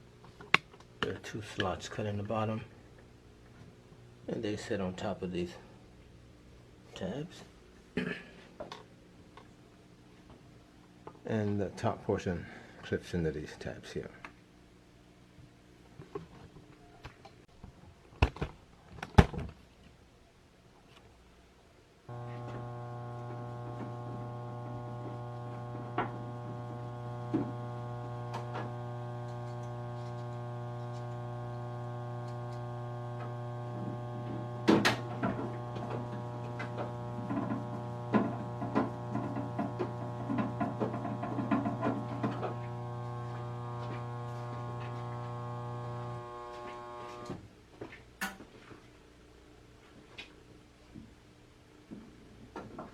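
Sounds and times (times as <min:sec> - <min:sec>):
ice machine humming: 0:22.1 - 0:47.4.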